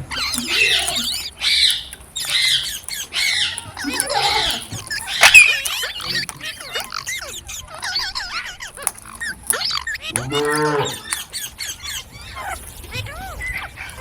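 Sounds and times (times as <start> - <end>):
parrots chirping: 0.0 - 14.0
low moo-like call: 10.2 - 11.0.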